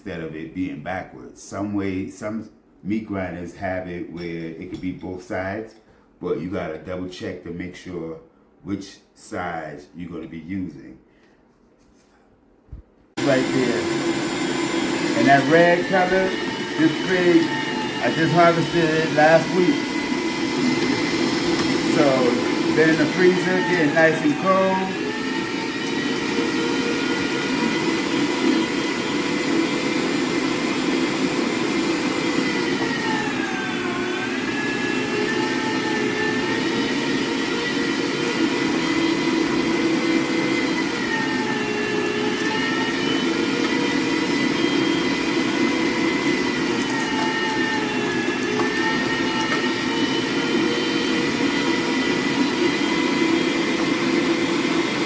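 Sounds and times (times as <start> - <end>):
electric meat grinder motor whine: 13.2 - 55.0.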